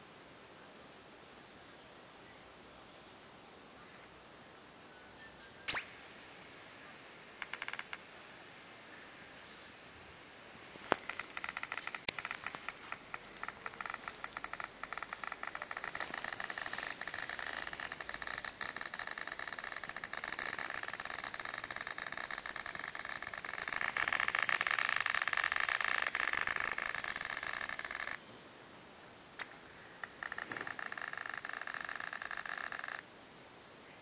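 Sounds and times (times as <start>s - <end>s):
hard drive clicking and whirring: 5.7s - 28.2s, 29.4s - 33.0s.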